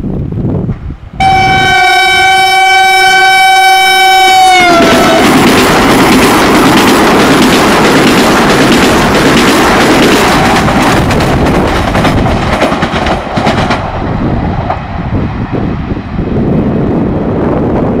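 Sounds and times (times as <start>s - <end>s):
train wheels and air rushing: 0.0s - 1.3s, 4.5s - 18.0s
wind on microphone: 0.0s - 2.7s, 4.3s - 18.0s
low train rumble: 0.0s - 18.0s
wheels clacking on track: 4.3s - 15.0s.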